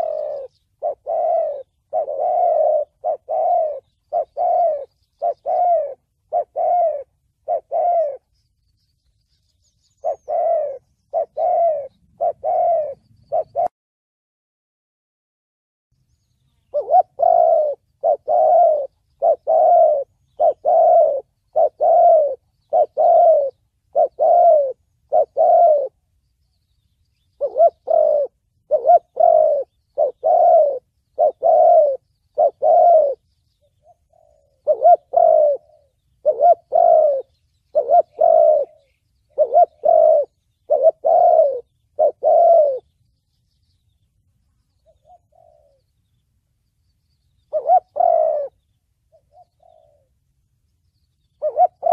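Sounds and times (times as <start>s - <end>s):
dove cooing: 0.0s - 8.4s, 9.6s - 13.7s, 16.6s - 26.1s, 27.2s - 42.9s, 44.7s - 46.1s, 47.4s - 50.2s, 51.2s - 51.9s.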